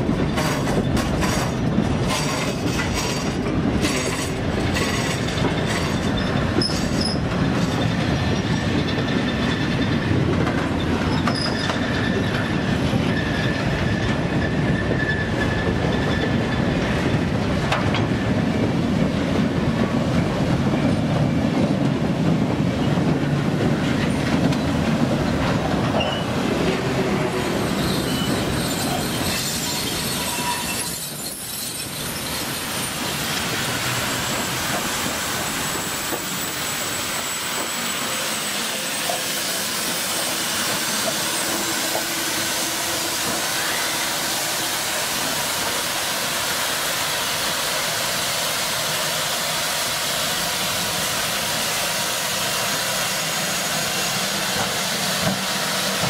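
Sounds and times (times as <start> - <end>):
freight car wheels rumbling and clacking: 0.0 - 27.3
thin wheel squeal: 11.1 - 12.3, 27.6 - 32.3
steam hissing: 27.4 - 56.0.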